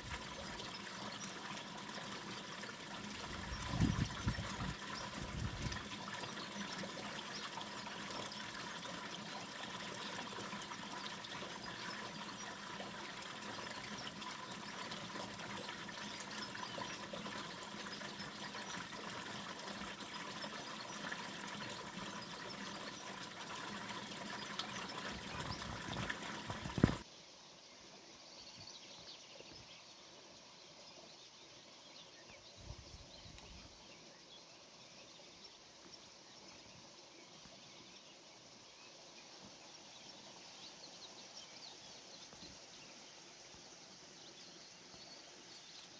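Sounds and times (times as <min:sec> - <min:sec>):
fountain water splashing: 0:00.0 - 0:27.0
quiet outdoor background: 0:00.0 - 0:45.9.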